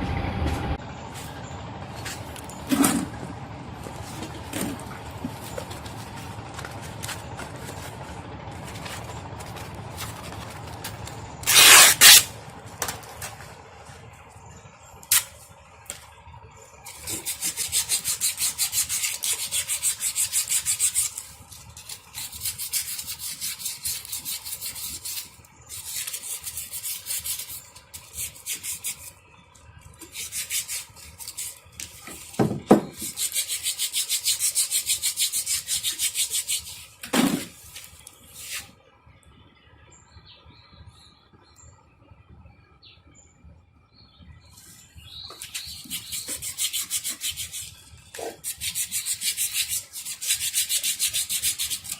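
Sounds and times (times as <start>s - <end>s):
rhythmic rasping strokes: 16.9s - 29.2s, 30.0s - 37.0s, 45.3s - 51.9s.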